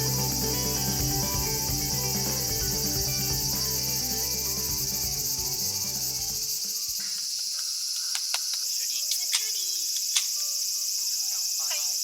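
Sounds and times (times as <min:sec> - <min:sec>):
background music: 0:00.0 - 0:06.8
insects droning: 0:00.0 - 0:12.0.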